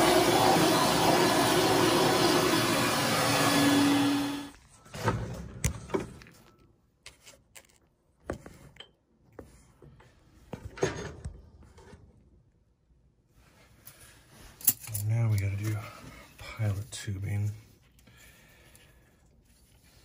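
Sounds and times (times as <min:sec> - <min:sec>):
loud rush of air: 0:00.0 - 0:04.5
steady motor hum: 0:00.0 - 0:04.5.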